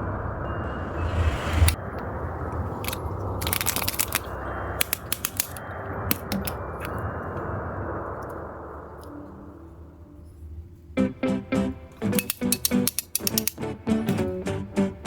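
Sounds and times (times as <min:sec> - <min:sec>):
steady low hiss: 0:00.0 - 0:13.9
toy egg clicking and crackling: 0:02.8 - 0:06.9, 0:12.0 - 0:13.6.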